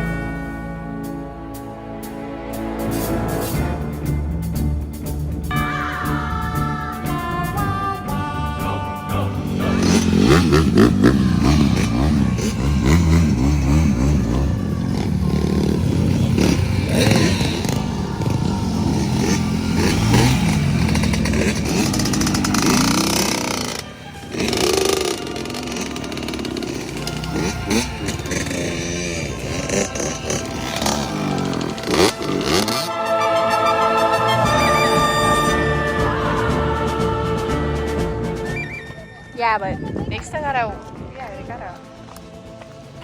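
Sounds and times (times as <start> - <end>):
dirt bike engines revving: 2.2 - 43.0.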